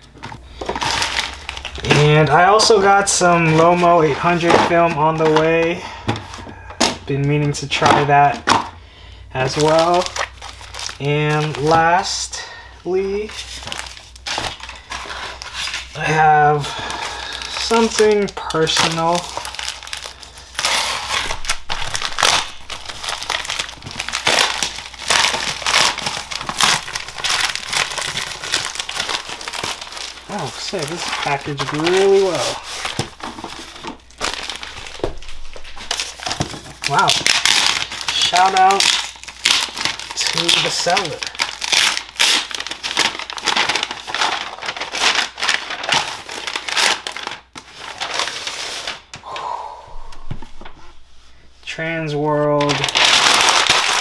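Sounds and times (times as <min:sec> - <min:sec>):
packaging crinkling: 0:00.0 - 0:49.2, 0:52.4 - 0:54.0.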